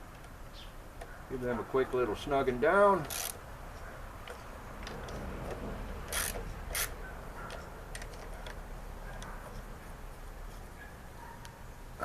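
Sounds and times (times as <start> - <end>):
wrench clicking on nuts: 3.0 - 3.4, 4.2 - 7.0.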